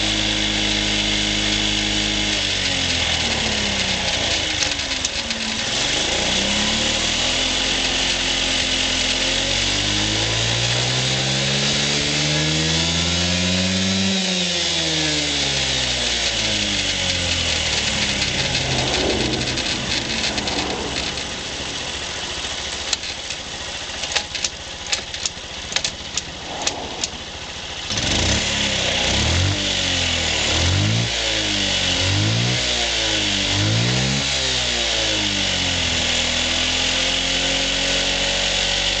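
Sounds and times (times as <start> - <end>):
scooter engine revving: 0.0 - 39.0
sharp clicks: 24.0 - 27.2.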